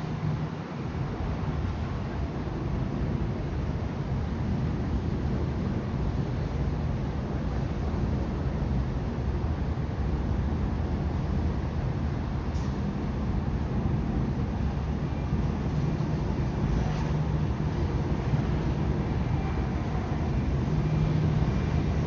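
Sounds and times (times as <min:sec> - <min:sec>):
low outdoor rumble: 0:12.8 - 0:22.0.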